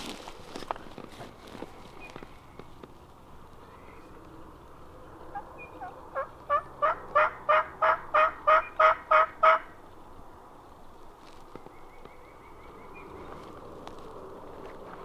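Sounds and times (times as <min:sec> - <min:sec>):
wild turkey yelping: 0:05.2 - 0:09.7.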